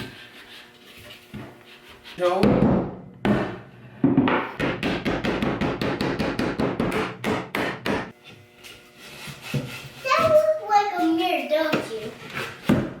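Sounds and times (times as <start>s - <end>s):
hammer striking wood: 2.4s - 8.2s.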